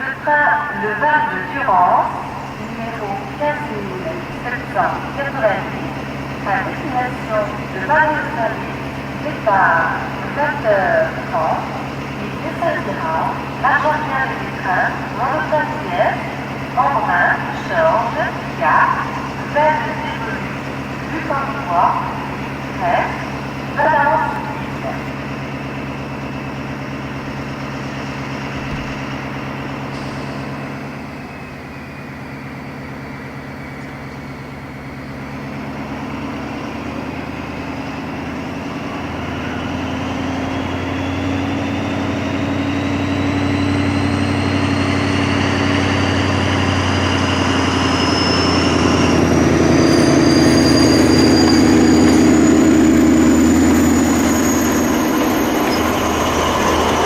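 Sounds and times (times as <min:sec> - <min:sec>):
diesel locomotive pulling away: 0:00.0 - 0:57.0
rising whine: 0:36.3 - 0:57.0.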